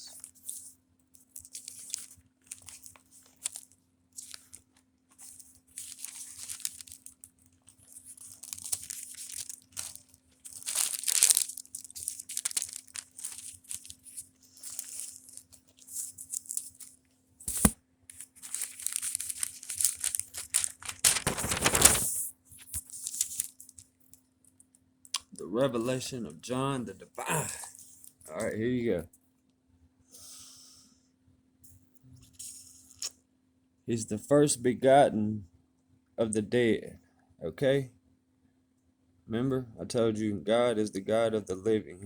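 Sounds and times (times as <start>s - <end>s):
thin pages rustling: 0.2s - 23.8s.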